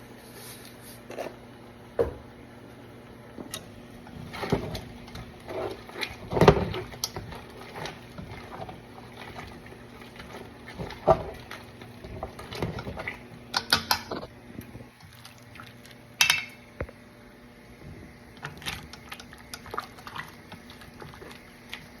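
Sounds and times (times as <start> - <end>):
liquid noises: 3.5 - 17.0, 17.9 - 22.0
pot and utensils clinking: 10.3 - 14.3, 16.2 - 16.6.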